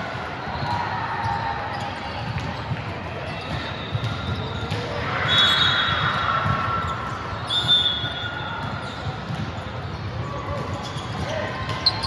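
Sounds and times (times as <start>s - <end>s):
gymnasium noise: 0.0s - 12.0s
high-pitched shoe squeals: 3.3s - 6.2s, 6.8s - 9.2s, 10.2s - 12.0s.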